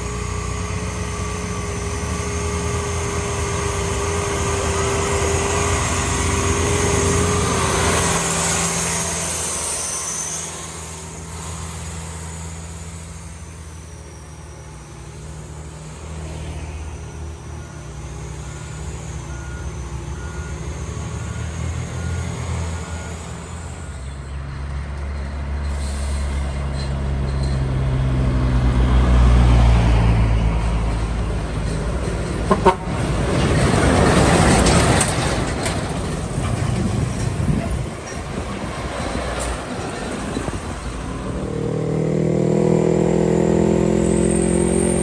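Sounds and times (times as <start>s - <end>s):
diesel truck engine running: 0.0s - 25.5s.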